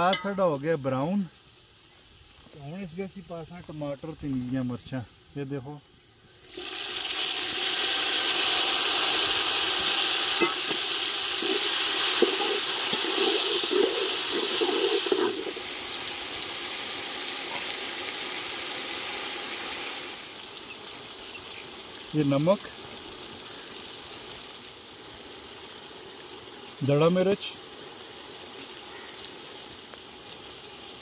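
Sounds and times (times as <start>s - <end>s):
vegetables sizzling in hot oil: 0.0s - 31.0s
metal spoon scraping a pot: 11.4s - 15.6s.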